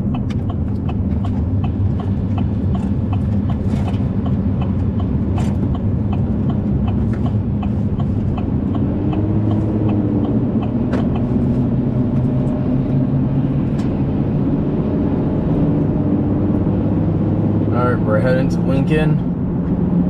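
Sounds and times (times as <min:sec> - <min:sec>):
light even ticking: 0:00.0 - 0:11.3
car engine and road drone: 0:00.0 - 0:20.0.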